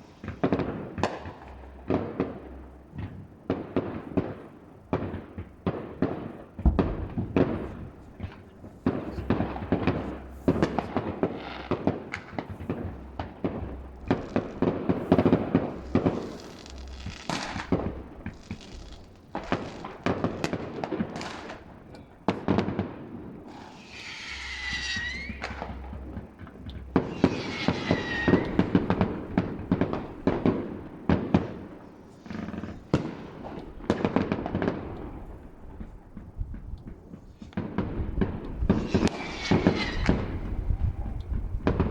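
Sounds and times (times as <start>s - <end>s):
distant fireworks bangs and crackling: 0.0s - 41.9s
falling firework whistles: 9.1s - 21.6s, 23.5s - 30.6s, 38.6s - 41.3s.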